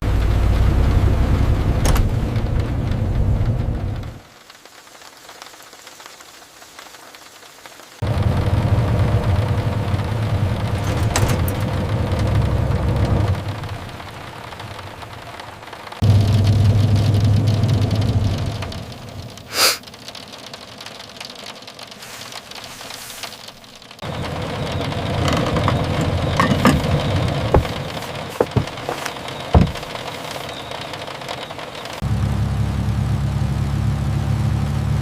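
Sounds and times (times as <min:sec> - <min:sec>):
bus engine hum: 0:00.0 - 0:04.2, 0:08.0 - 0:35.0
rain: 0:00.0 - 0:35.0.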